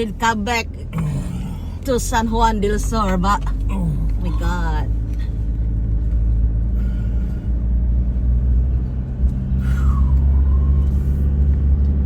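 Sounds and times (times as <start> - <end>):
vehicle driving on rough dirt track: 0.0 - 12.0.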